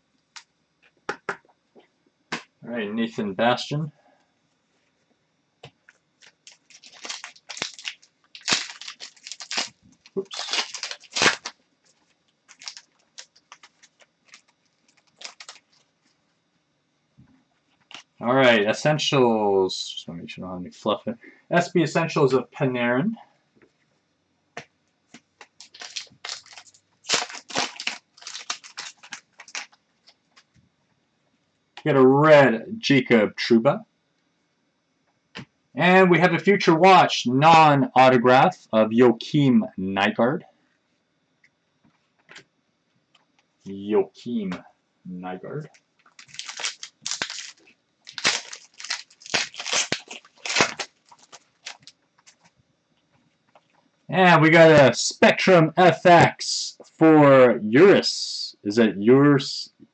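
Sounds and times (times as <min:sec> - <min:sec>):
cards rustling by hand: 0:06.2 - 0:15.9, 0:25.1 - 0:29.8, 0:46.1 - 0:52.5
plastic packaging crinkling: 0:06.2 - 0:16.2, 0:17.8 - 0:18.2, 0:25.4 - 0:30.5, 0:46.0 - 0:52.5.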